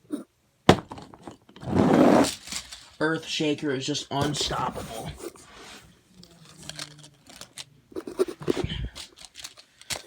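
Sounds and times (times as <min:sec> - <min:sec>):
toy trucks clicking and scraping: 0:02.2 - 0:03.0, 0:06.2 - 0:10.0.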